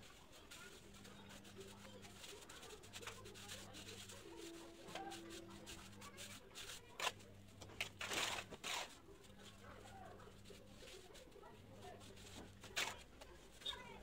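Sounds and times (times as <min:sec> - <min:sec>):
trowel scraping mortar: 0:07.8 - 0:09.0.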